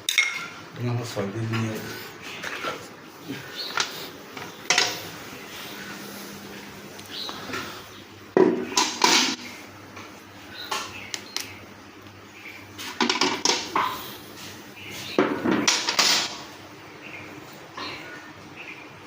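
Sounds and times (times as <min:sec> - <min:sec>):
metal objects clattering: 0:08.7 - 0:09.5, 0:12.9 - 0:14.0, 0:15.4 - 0:16.5.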